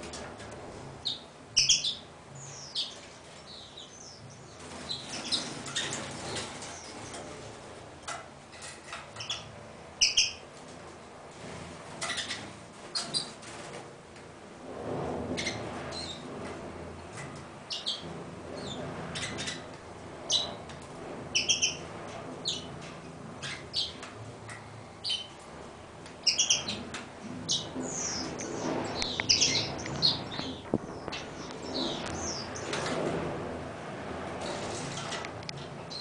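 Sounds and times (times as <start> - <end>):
small bird chirping: 1.0 - 7.1, 9.2 - 10.4, 26.2 - 26.8, 27.5 - 32.7.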